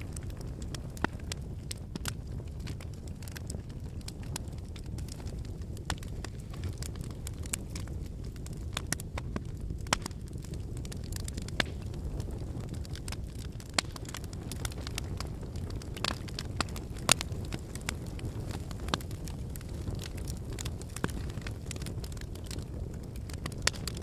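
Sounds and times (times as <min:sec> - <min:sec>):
firewood popping and crackling: 0:00.0 - 0:24.0
low rumble of flames: 0:00.0 - 0:24.0.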